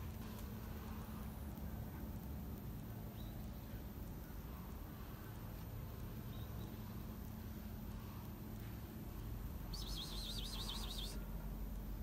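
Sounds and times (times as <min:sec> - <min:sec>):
faint low hum: 0:00.0 - 0:12.0
bird warbling trill: 0:09.7 - 0:11.2.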